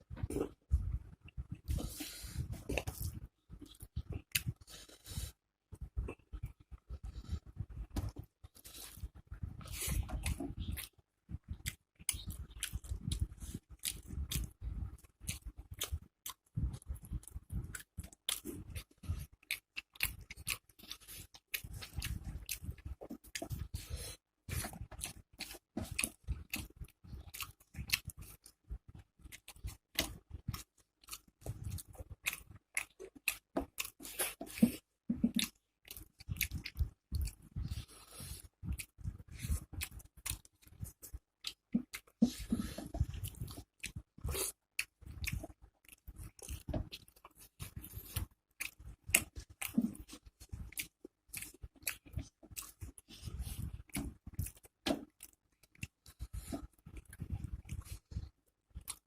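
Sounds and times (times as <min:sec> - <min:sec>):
person chewing crunchy food: 0:00.1 - 0:59.0.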